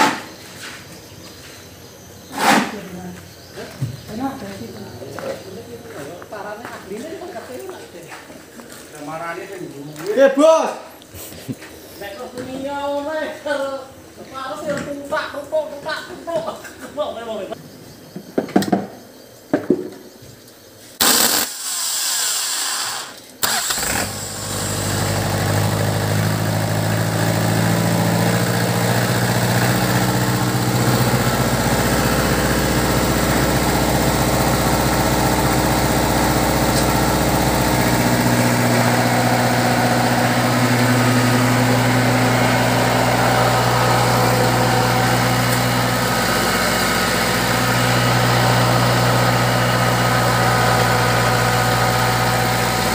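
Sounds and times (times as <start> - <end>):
engine cranking and running: 23.0 - 52.9.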